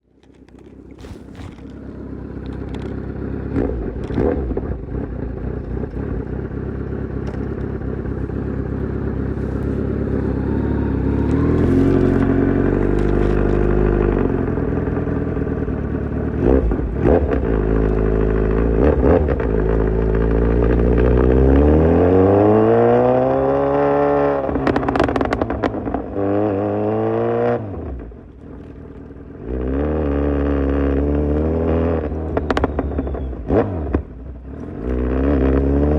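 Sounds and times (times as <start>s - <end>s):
exhaust cracks: 0.0s - 21.6s, 24.4s - 26.2s, 32.0s - 35.1s
motorcycle engine accelerating: 0.1s - 35.9s.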